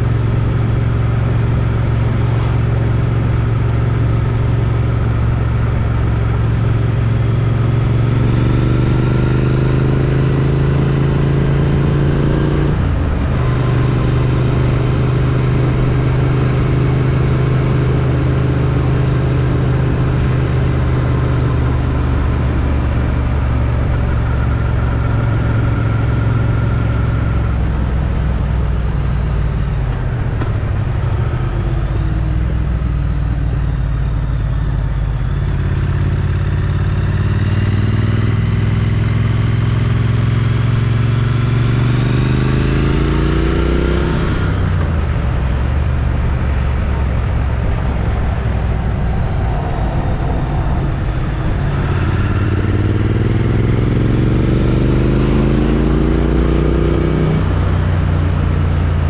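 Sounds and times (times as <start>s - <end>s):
motorcycle engine running: 0.0s - 59.0s
wind rush: 44.6s - 55.1s.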